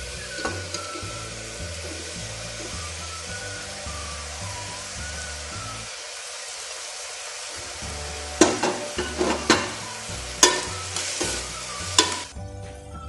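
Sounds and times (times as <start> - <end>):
vegetables sizzling in oil: 0.0 - 12.3
metal spoon scraping pot: 8.4 - 9.8, 10.4 - 12.3.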